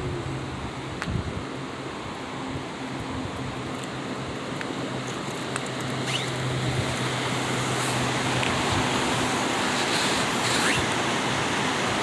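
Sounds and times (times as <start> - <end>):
flowing water rushing: 5.8 - 12.0.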